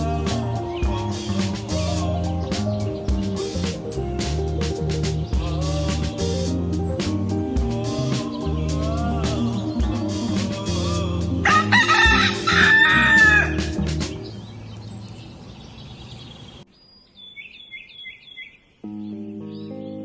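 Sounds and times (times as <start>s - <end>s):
background music: 0.0s - 14.3s
rooster crowing: 11.5s - 13.6s.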